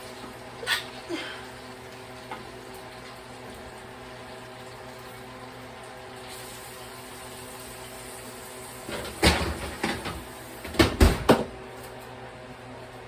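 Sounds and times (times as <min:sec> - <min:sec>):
kitchenware knocks and bangs: 0:08.9 - 0:11.5.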